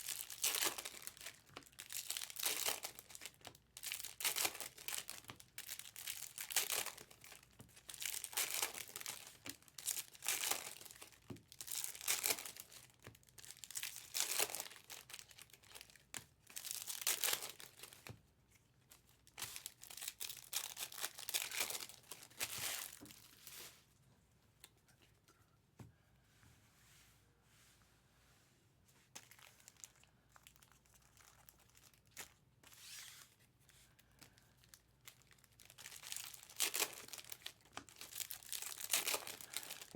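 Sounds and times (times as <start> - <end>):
card wrappers crinkling and tearing: 0.0 - 18.1, 18.9 - 23.7, 29.2 - 39.9.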